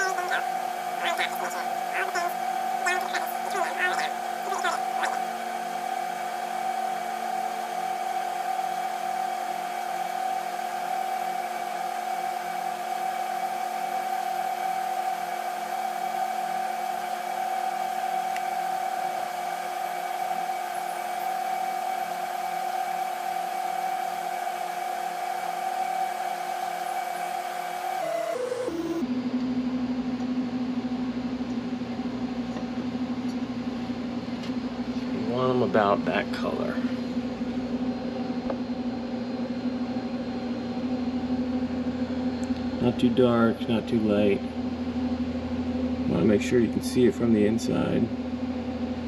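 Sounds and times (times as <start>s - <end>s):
electric motor whirring: 26.2s - 29.0s.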